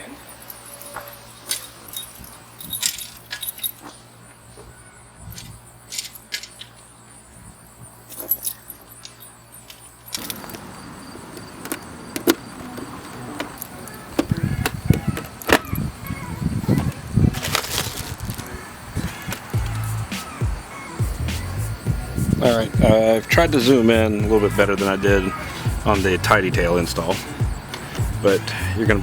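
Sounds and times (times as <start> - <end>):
metallic clinks of tools and parts: 0.0 - 4.2, 5.2 - 6.9, 8.0 - 10.8.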